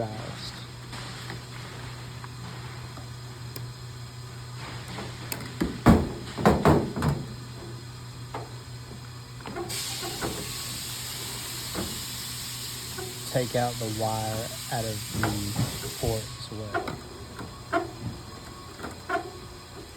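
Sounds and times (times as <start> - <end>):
steady low hum: 0.0 - 19.9
steady high hiss: 9.7 - 17.2.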